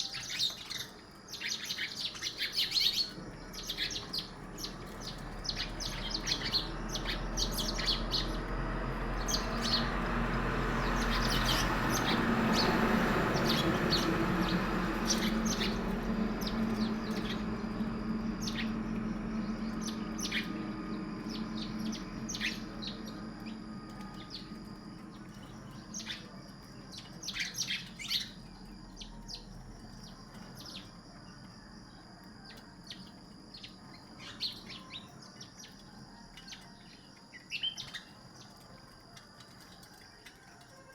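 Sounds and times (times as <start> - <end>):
birds chirping: 0.0 - 30.9
low rumble with faint hum: 0.0 - 37.0.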